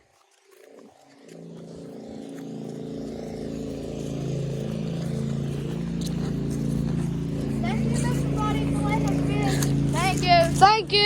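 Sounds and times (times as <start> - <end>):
vehicle engine approaching: 0.0 - 11.0.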